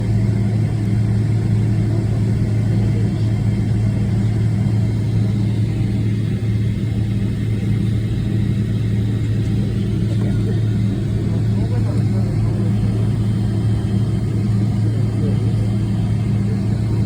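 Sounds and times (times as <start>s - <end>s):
jet engines droning: 0.0s - 17.0s.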